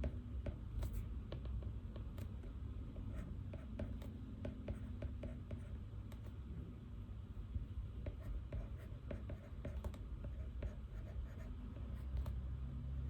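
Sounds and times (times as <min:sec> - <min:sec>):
pen taps: 0:00.0 - 0:02.3
steady low hum: 0:00.0 - 0:13.0
pen scratching on paper: 0:03.0 - 0:06.3, 0:08.0 - 0:12.3.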